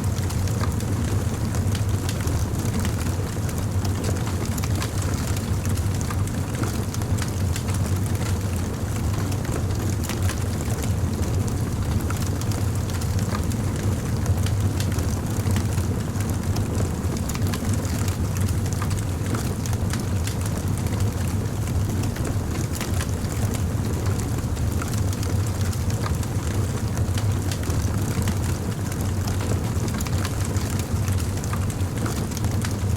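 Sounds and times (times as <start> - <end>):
fire crackling: 14.4 - 32.8.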